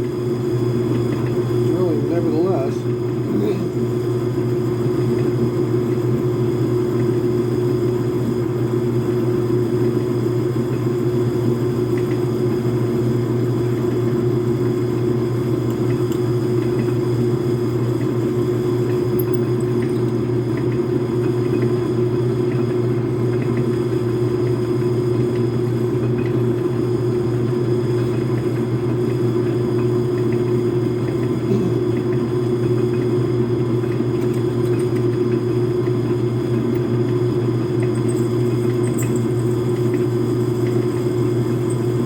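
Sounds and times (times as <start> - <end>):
metal lathe humming: 0.0 - 6.1, 24.1 - 42.0.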